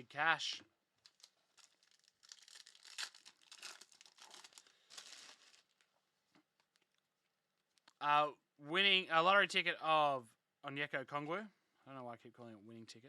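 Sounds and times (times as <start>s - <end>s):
foil wrapper crinkling and tearing: 1.0s - 5.9s.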